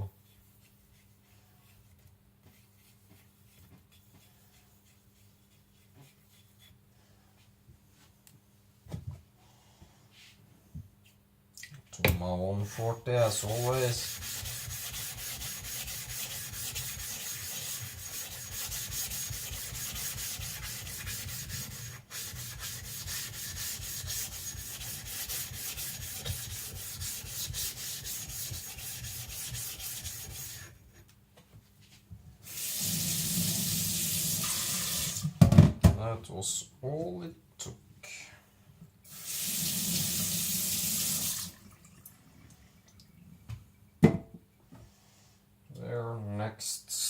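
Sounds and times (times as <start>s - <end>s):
stone rubbing on flattening plate: 12.6s - 30.7s.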